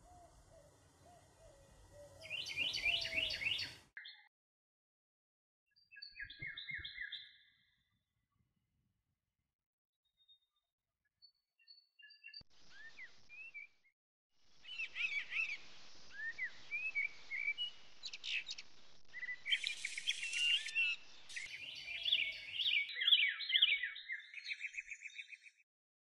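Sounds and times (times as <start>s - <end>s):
songbirds singing: 0.0s - 4.3s, 5.8s - 7.6s, 14.6s - 25.6s.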